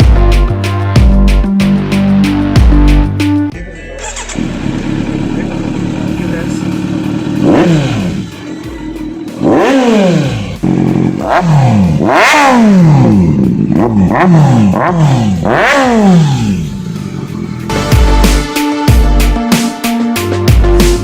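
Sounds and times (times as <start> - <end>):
motorcycle engine revving: 4.0 - 18.4.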